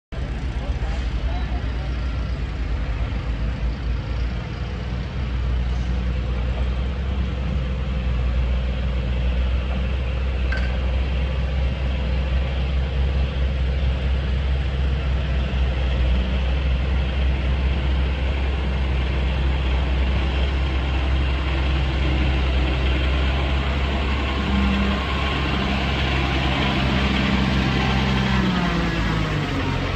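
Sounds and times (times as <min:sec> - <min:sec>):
diesel engine droning: 0:00.1 - 0:29.9.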